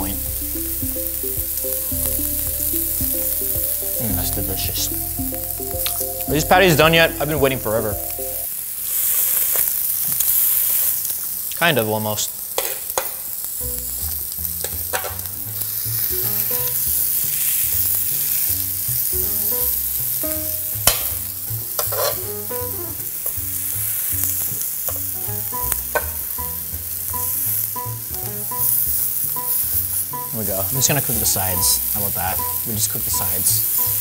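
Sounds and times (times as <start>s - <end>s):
food sizzling on a griddle: 0.0s - 7.6s, 8.4s - 34.0s
metal spatula scraping griddle: 21.8s - 22.3s.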